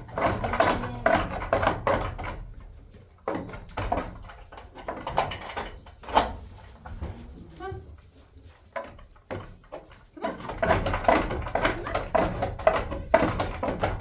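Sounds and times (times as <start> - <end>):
wooden knocks and clatter: 0.0 - 7.3, 8.4 - 14.0.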